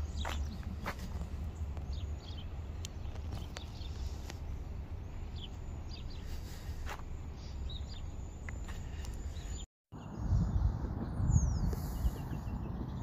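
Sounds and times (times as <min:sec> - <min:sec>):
bird chirps: 0:00.0 - 0:13.0
wind rumble on microphone: 0:07.7 - 0:13.0.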